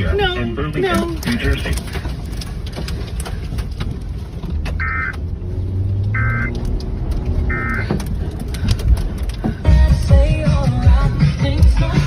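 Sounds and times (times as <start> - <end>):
vehicle engine humming: 0.0 - 12.0
short electronic beeps: 6.2 - 6.6, 7.5 - 7.9.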